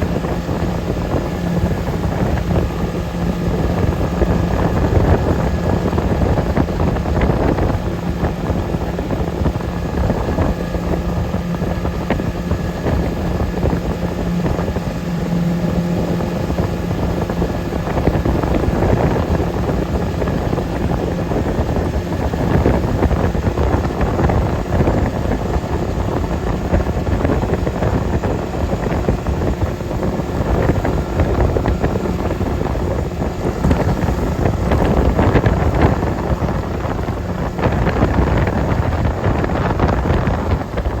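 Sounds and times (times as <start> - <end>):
motorboat engine running: 0.0 - 41.0
water noise: 0.0 - 41.0
wind buffeting microphone: 0.0 - 41.0.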